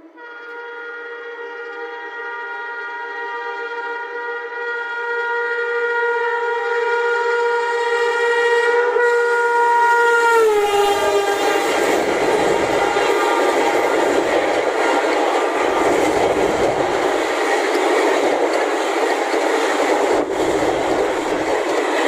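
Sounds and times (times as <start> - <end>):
locomotive horn: 0.0 - 17.4
train rushing past: 10.0 - 22.0.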